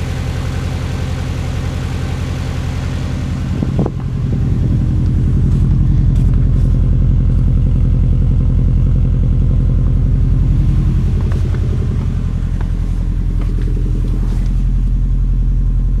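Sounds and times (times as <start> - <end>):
car engine idling: 0.0 - 16.0
rhythmic pulsing engine knock: 0.0 - 16.0.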